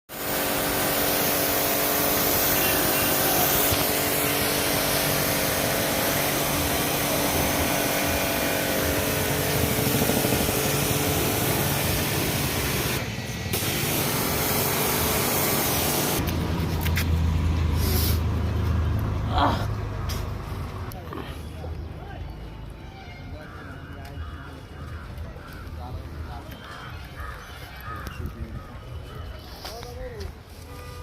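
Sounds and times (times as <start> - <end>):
loud hiss of air jet: 0.1 - 16.2, 17.7 - 18.3
machine hum: 0.2 - 16.2.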